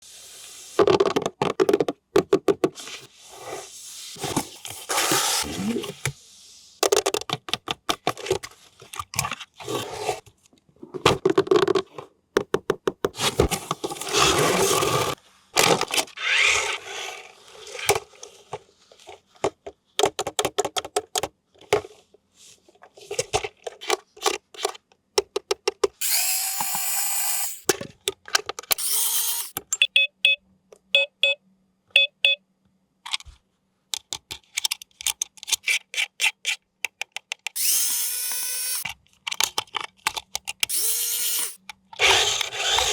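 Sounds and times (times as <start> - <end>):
toy motors whirring: 16.2 - 17.8, 26.0 - 27.7, 28.7 - 29.6, 37.5 - 38.9, 40.6 - 42.9
plastic parts clicking: 34.0 - 36.1, 36.8 - 42.9.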